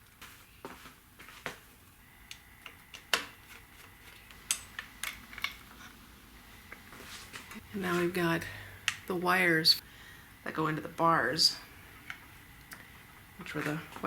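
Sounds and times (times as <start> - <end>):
small tools clicking and tapping: 2.3 - 6.0.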